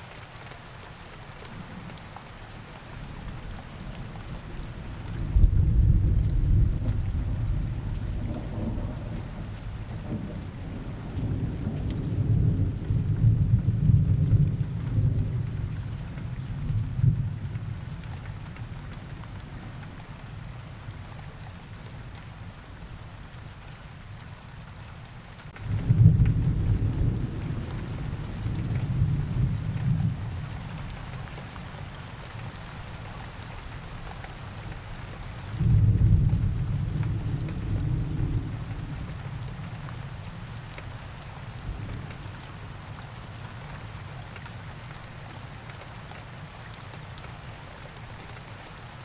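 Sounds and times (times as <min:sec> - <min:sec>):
steady rain: 0:00.0 - 0:49.0
low rumble of thunder: 0:03.0 - 0:23.2, 0:25.6 - 0:32.9, 0:33.6 - 0:45.2.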